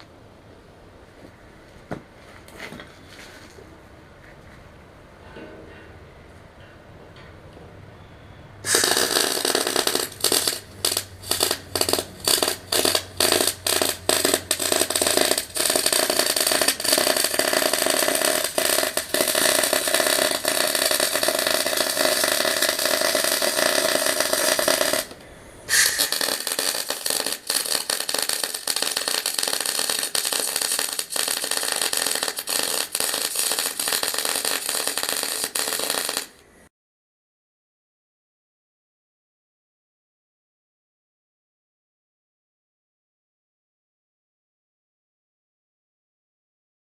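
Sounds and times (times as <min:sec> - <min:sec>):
welding arc crackling on steel: 0:08.6 - 0:36.4.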